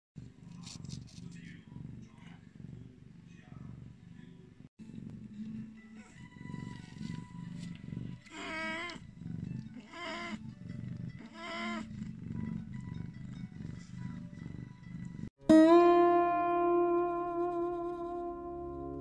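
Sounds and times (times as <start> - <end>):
low continuous purr: 0.2 - 15.4, 16.6 - 19.0
kitten mewing: 6.1 - 9.1, 9.7 - 10.5, 11.1 - 12.7.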